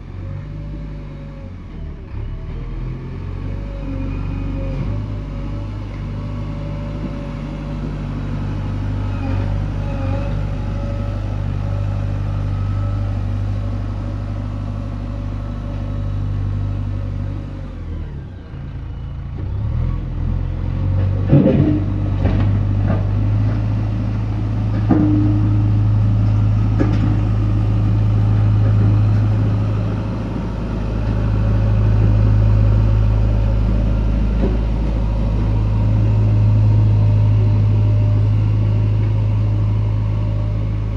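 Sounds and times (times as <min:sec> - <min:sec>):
diesel engine running: 0:00.0 - 0:40.9
sharp engine knocks: 0:24.7 - 0:27.5.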